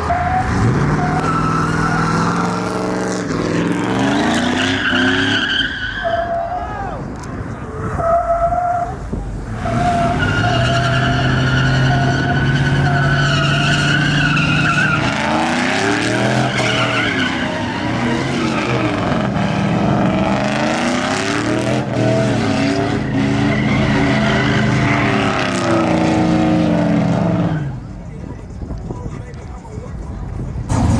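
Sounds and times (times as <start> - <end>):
truck engine revving: 0.0 - 5.8, 9.1 - 27.7, 30.7 - 30.9
tires squealing: 0.0 - 28.1.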